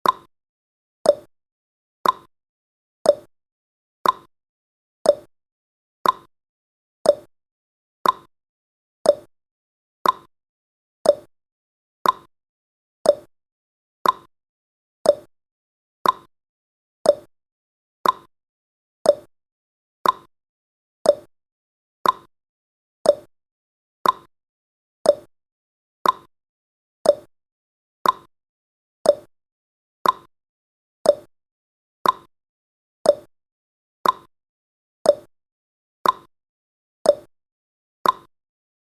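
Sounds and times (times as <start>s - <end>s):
timer ticking: 0.0s - 0.3s, 1.0s - 1.3s, 2.0s - 2.3s, 3.1s - 3.3s, 4.0s - 4.3s, 5.1s - 5.3s, 6.0s - 6.3s, 7.0s - 7.3s, 8.0s - 8.3s, 9.0s - 9.3s, 10.0s - 10.3s, 11.0s - 11.3s, 12.0s - 12.3s, 13.0s - 13.3s, 14.0s - 14.3s, 15.0s - 15.3s, 16.0s - 16.3s, 17.0s - 17.3s, 18.0s - 18.3s, 19.0s - 19.3s, 20.0s - 20.3s, 21.0s - 21.3s, 22.0s - 22.3s, 23.0s - 23.3s, 24.0s - 24.3s, 25.0s - 25.3s, 26.0s - 26.3s, 27.0s - 27.3s, 28.0s - 28.3s, 29.0s - 29.3s, 30.0s - 30.3s, 31.0s - 31.3s, 32.0s - 32.3s, 33.0s - 33.3s, 34.0s - 34.3s, 35.1s - 35.3s, 36.0s - 36.3s, 37.1s - 37.3s, 38.0s - 38.3s.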